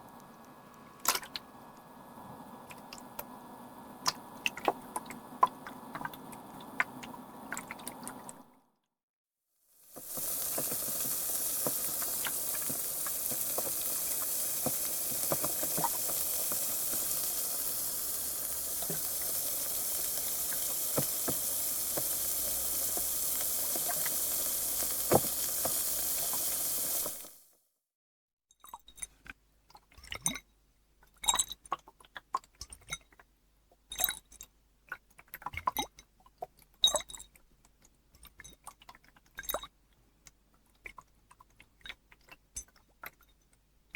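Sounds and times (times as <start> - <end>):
carbonated water fizzing: 0.0 - 8.5, 9.8 - 27.5.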